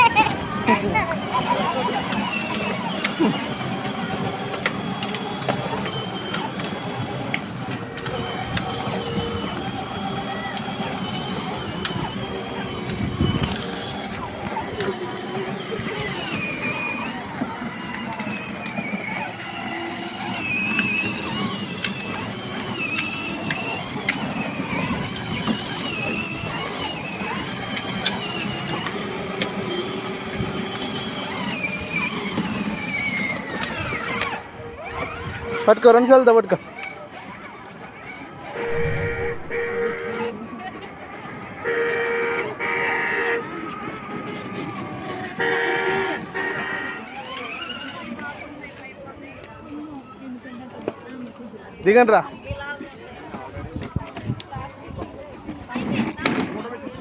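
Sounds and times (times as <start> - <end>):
mechanical whirring and rattling: 0.0 - 35.8, 38.5 - 40.3
rattling hum: 38.5 - 40.4
high-pitched motor whine: 38.6 - 40.4.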